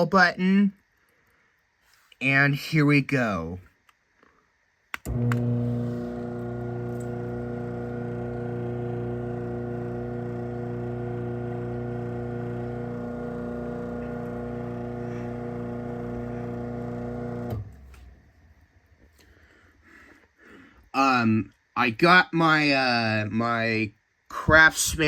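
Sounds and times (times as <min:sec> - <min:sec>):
garage door opener click: 0:05.0 - 0:07.4
garage door opener motor hum: 0:05.0 - 0:18.3.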